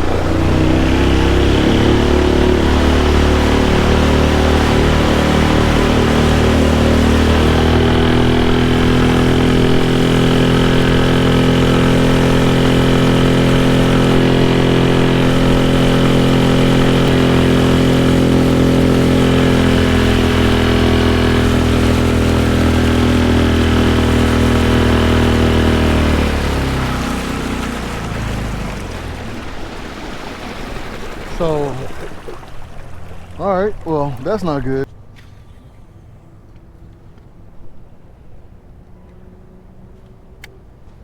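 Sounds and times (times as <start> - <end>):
outboard motor running: 0.0 - 34.9.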